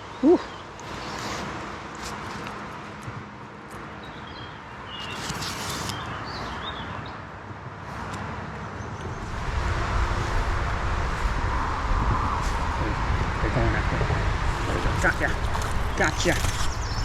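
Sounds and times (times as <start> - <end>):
steady outdoor hiss: 0.0 - 17.0
small bird chirping: 14.6 - 17.0.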